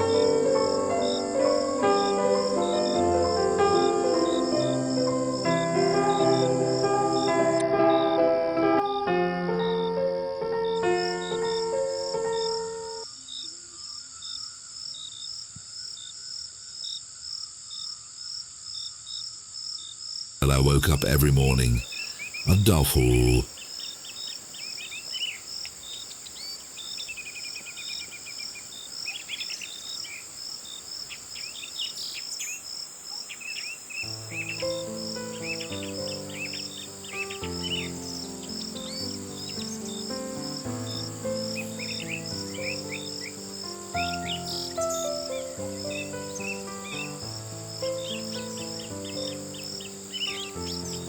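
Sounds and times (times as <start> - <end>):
crickets chirping: 0.0 - 7.6, 10.7 - 20.4, 23.5 - 51.0
soft piano music: 0.0 - 13.0, 34.1 - 51.0.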